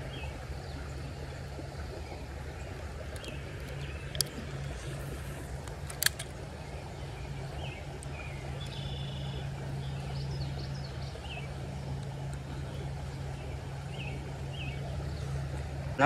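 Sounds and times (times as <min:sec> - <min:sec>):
steady low hum: 0:00.0 - 0:16.0
sharp click: 0:05.7 - 0:06.3.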